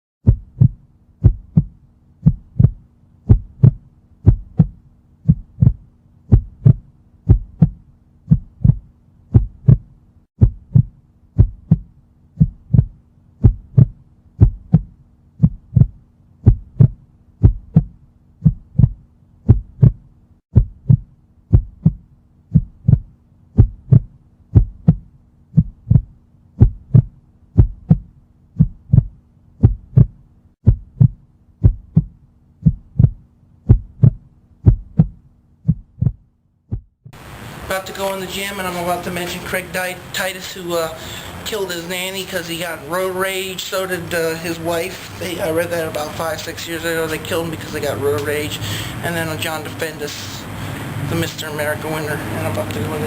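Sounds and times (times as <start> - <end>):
paired low thumps: 0.2 - 37.2
faint steady hum: 0.2 - 53.0.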